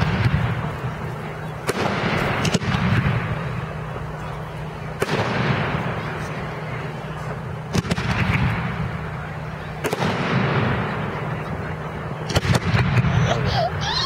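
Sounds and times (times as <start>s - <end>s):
echoing fireworks booms: 0.0s - 3.8s, 5.0s - 6.6s, 7.7s - 13.2s
fireworks sharp bangs: 0.0s - 13.5s.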